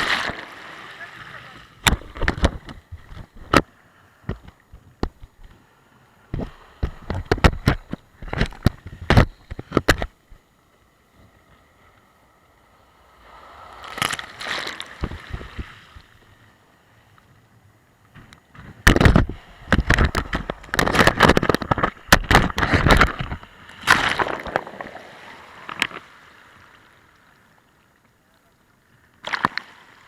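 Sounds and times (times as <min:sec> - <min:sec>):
sea waves breaking on shore: 0:00.0 - 0:04.6, 0:10.8 - 0:17.1, 0:18.5 - 0:27.7, 0:29.1 - 0:30.0.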